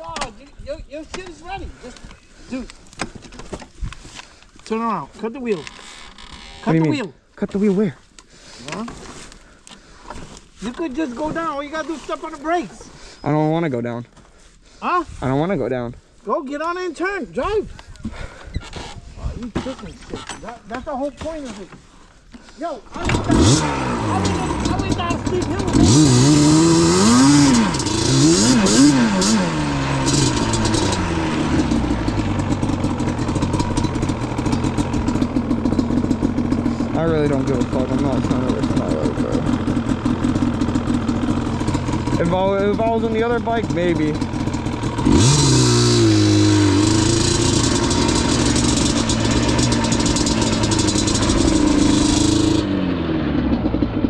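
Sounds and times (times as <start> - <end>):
two-stroke engine revving and idling: 22.9 - 54.0.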